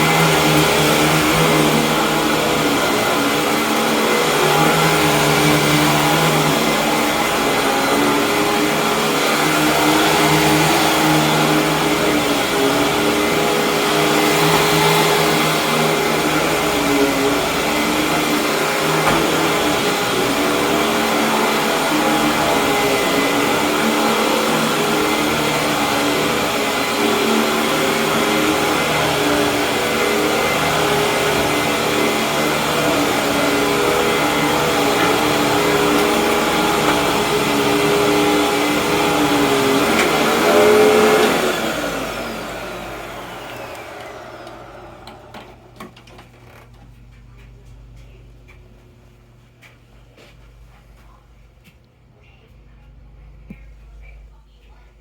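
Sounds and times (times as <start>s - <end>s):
vacuum cleaner running: 0.0s - 48.2s
motor winding down: 27.1s - 45.7s.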